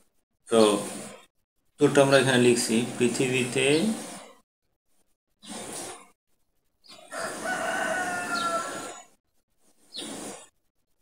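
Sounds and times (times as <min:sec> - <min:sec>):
rooster crowing: 0:07.1 - 0:09.1.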